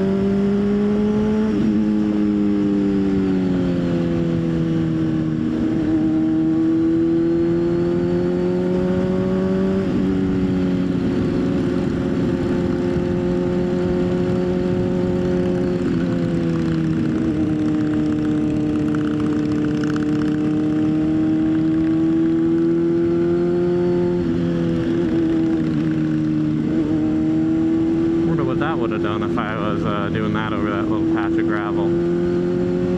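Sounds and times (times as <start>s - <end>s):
low rush of wind: 0.0s - 32.9s
motorcycle engine running: 0.0s - 32.9s.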